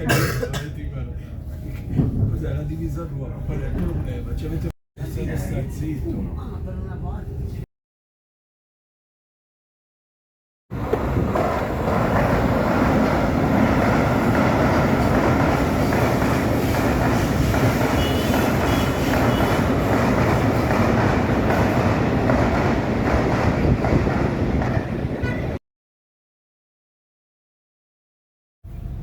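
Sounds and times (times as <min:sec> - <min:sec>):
train wheels rumbling on track: 0:00.1 - 0:07.3, 0:10.7 - 0:25.6.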